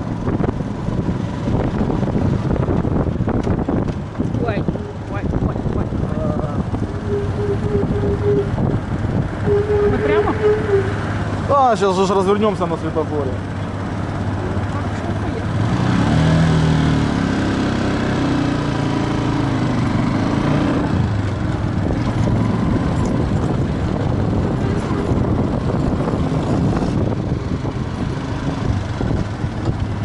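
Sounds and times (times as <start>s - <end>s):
wind noise on microphone: 0.0s - 11.5s, 18.7s - 30.0s
motorcycle engine accelerating: 0.0s - 30.0s.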